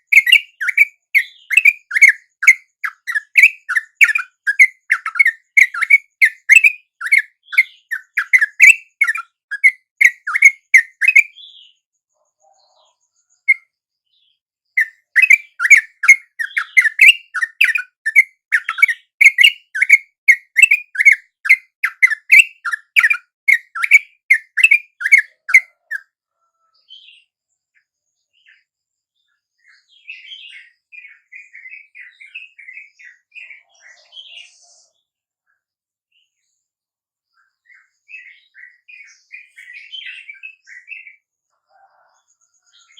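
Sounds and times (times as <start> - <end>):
bird calling fast repeated notes: 0.0 - 11.3, 14.8 - 26.1
faint bird chattering: 0.0 - 36.4.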